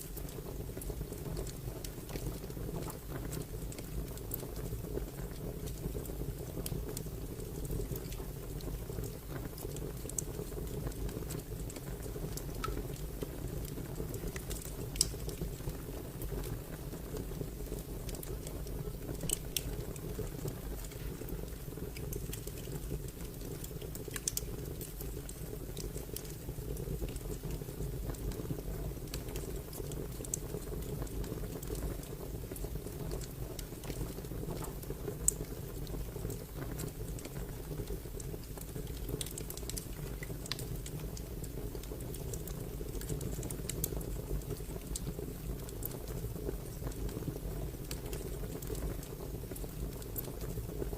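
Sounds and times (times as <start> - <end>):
fire crackling: 0.0 - 50.9
sharp snaps and pops: 9.3 - 15.7, 18.1 - 28.4, 29.0 - 47.2.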